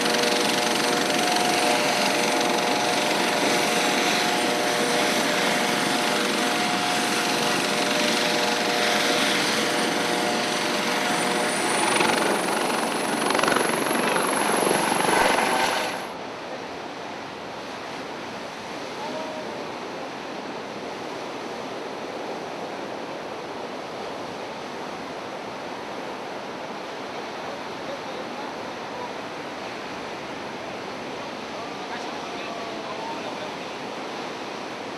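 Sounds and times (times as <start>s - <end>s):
helicopter droning: 0.0s - 16.2s
wind: 0.0s - 34.9s.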